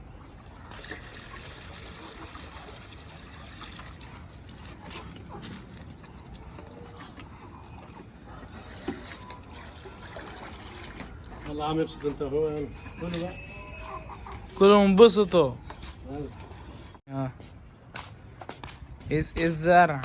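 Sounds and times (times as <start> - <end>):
water poured into drinker: 0.3 - 4.3, 8.6 - 11.4.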